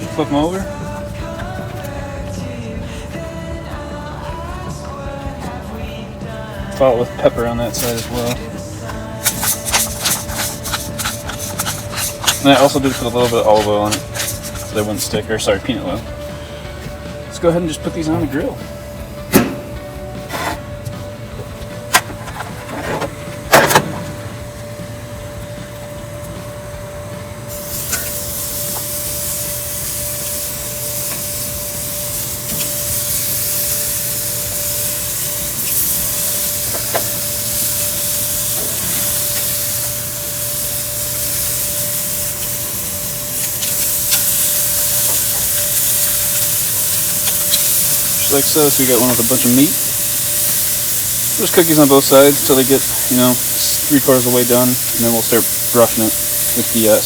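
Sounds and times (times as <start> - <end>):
meat sizzling on grill: 0.0 - 57.0
skewers knocking on grill grate: 3.8 - 16.2, 19.2 - 24.5, 34.6 - 39.9.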